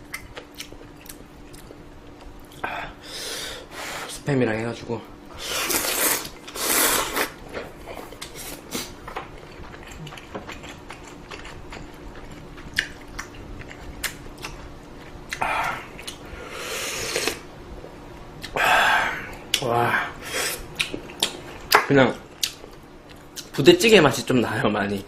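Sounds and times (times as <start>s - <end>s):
soft chewing: 0.0s - 2.6s, 5.7s - 16.4s
person slurping noodles: 5.4s - 7.3s, 16.4s - 17.4s.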